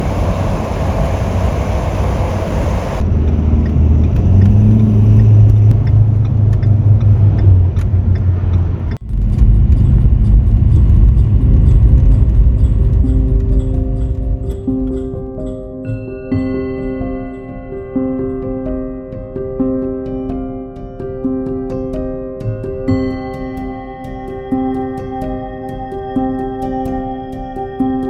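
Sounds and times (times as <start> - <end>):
vehicle low rumbling drone: 0.0 - 15.1.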